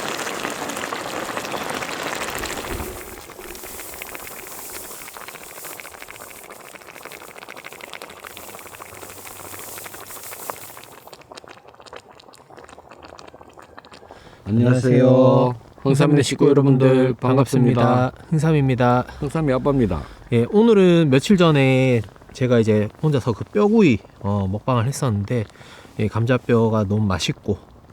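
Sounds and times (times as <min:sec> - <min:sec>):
soup boiling and bubbling: 0:00.0 - 0:27.9.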